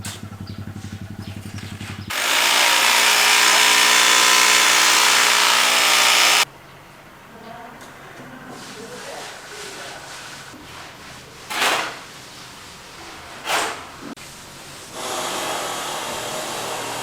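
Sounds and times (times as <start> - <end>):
power tool running: 2.1 - 6.5, 15.0 - 17.0.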